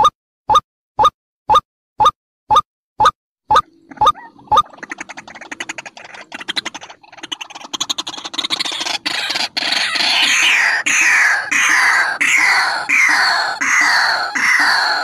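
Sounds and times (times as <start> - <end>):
bird rattling call: 3.9 - 15.0
bird harsh falling calls: 4.1 - 15.0.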